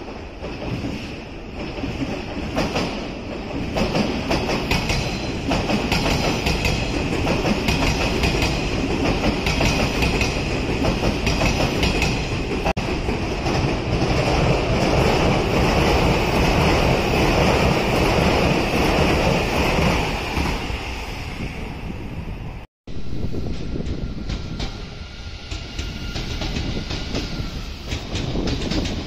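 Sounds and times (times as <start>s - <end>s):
electric trains passing: 0.0s - 29.0s
wheels clacking over rail joints: 27.9s - 29.0s.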